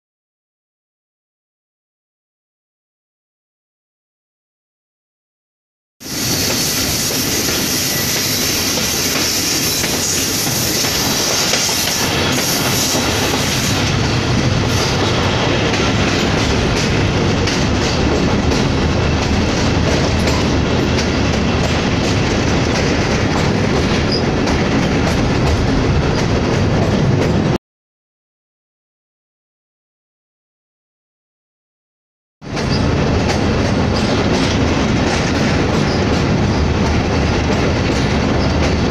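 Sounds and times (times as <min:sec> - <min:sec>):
train rumble: 0:06.0 - 0:27.6, 0:32.4 - 0:38.9.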